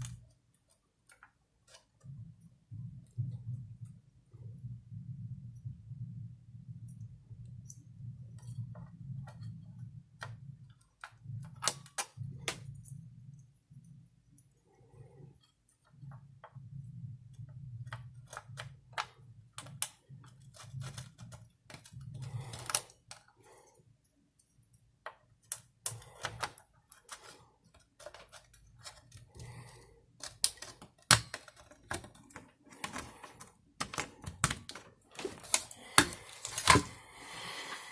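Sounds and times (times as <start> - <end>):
low steady hum: 0.0 - 37.9
small hard parts clicking: 17.9 - 23.3.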